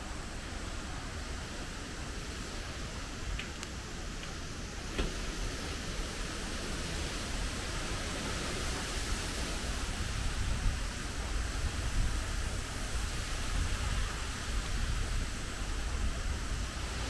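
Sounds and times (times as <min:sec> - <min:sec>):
wind and rain rushing: 0:00.0 - 0:17.0
wind buffeting microphone: 0:00.1 - 0:17.0.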